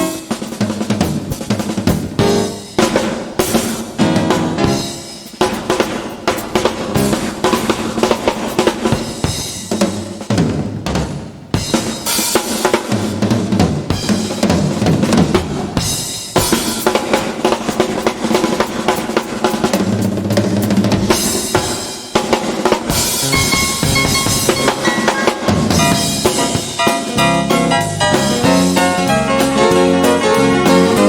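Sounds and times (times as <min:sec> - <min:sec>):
bass drum and snare hits: 0:00.0 - 0:31.0
live country band playing: 0:02.2 - 0:03.2, 0:03.9 - 0:05.2, 0:23.1 - 0:31.0.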